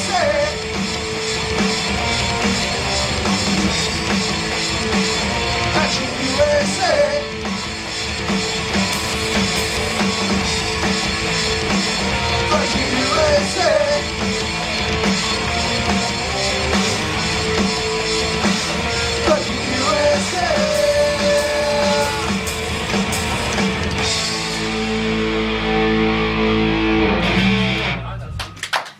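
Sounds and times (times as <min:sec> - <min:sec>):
rock band playing: 0:00.0 - 0:28.6
sliding pitched notes: 0:07.6 - 0:28.1.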